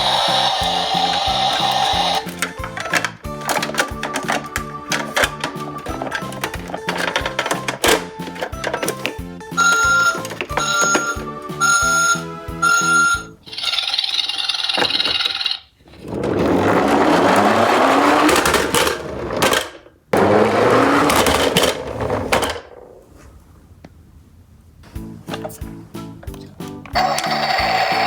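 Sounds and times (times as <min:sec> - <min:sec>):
background music: 0:00.0 - 0:13.5, 0:25.0 - 0:28.0
toy truck rolling on track: 0:00.0 - 0:22.9, 0:27.0 - 0:28.0.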